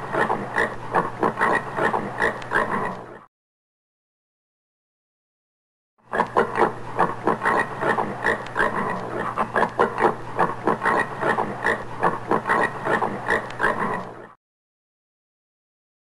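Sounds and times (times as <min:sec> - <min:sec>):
warthog grunting: 0:00.0 - 0:03.3.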